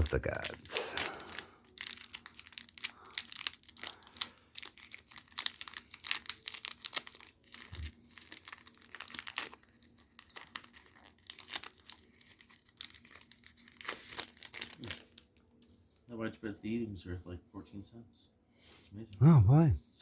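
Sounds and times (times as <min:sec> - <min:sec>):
plastic wrapper tearing and crinkling: 0:00.0 - 0:15.4.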